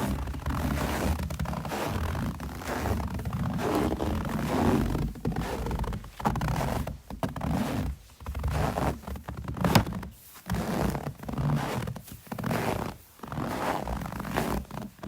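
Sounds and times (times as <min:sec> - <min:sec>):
footsteps crunching in snow: 0:00.0 - 0:15.0.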